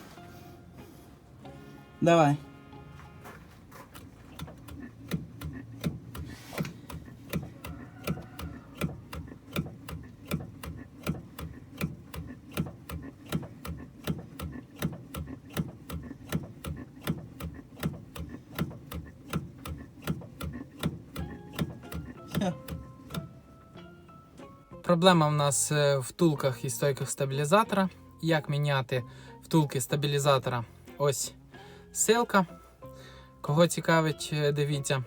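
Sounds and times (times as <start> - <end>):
car suspension knocking: 3.7 - 23.6.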